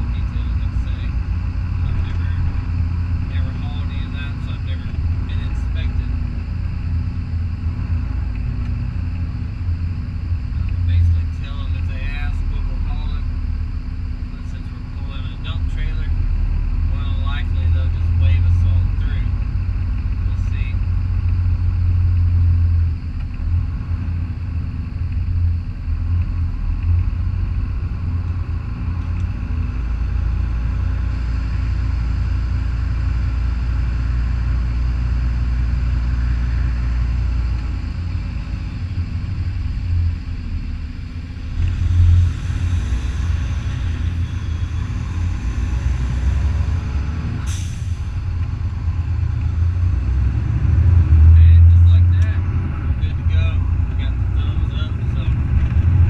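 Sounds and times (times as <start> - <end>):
truck diesel engine rumble: 0.0 - 56.0
air hiss: 47.4 - 48.2.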